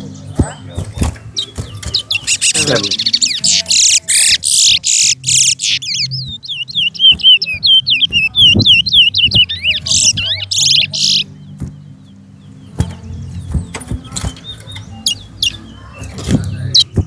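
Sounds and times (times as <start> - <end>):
finch twittering whistled notes: 0.0 - 17.0.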